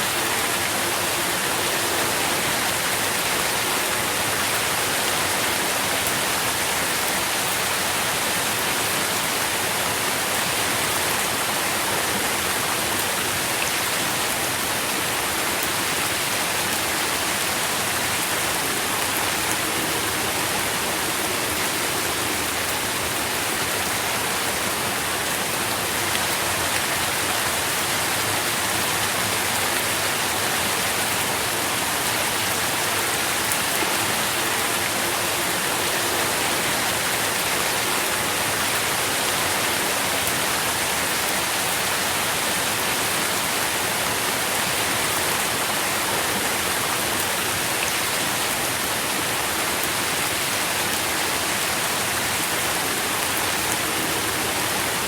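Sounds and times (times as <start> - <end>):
rain falling on leaves: 0.0 - 55.0.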